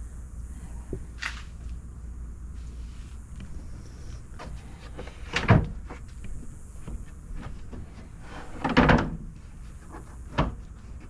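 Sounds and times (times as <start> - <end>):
panel sliding and rubbing: 7.3 - 11.0.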